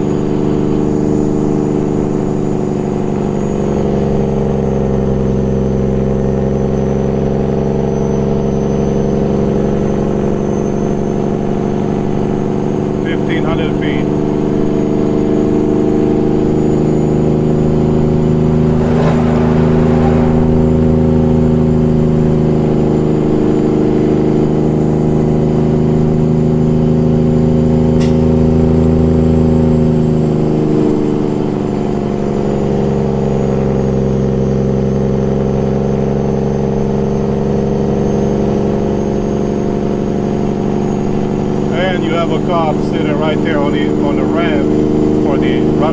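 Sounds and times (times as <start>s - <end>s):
truck diesel engine running: 0.0s - 45.9s.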